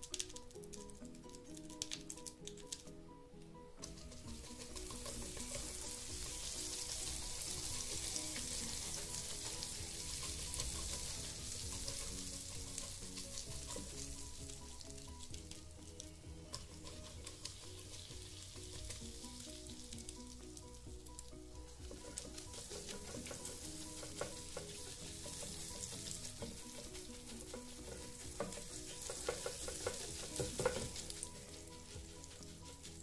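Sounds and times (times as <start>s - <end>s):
sizzling on waffle maker plates: 0.0s - 2.9s, 3.8s - 33.0s
light plucked background music: 0.0s - 33.0s.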